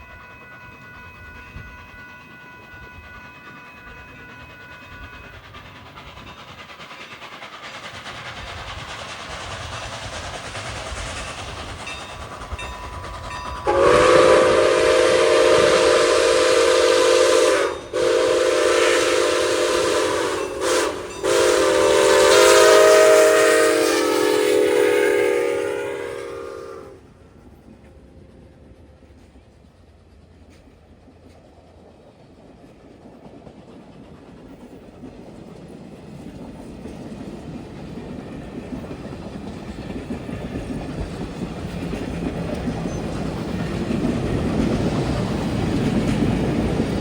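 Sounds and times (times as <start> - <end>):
train approaching: 0.0 - 47.0
locomotive horn blasts: 13.6 - 27.0.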